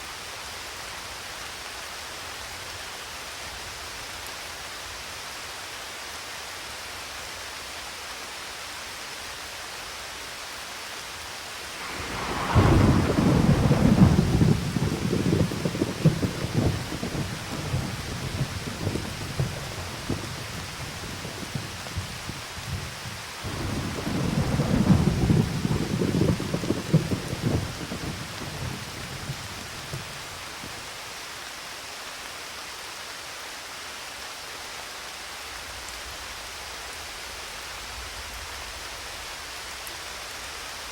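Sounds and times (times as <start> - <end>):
steady rain: 0.0 - 40.9
thunder rolling: 11.6 - 30.9.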